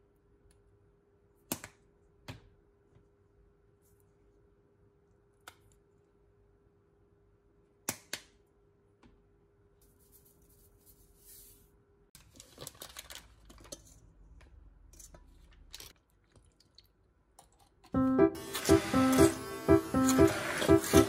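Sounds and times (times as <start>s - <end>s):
foil wrapper crinkling: 12.2s - 13.8s.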